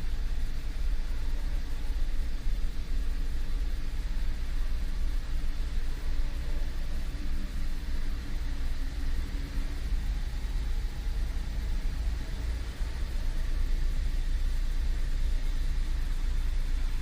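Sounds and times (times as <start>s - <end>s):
car engine low rumble: 0.0s - 17.0s.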